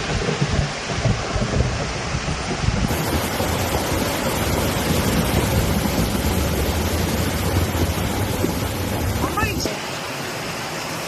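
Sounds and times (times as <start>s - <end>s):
wind buffeting microphone: 0.0s - 9.7s
floodwater rushing: 0.0s - 11.0s.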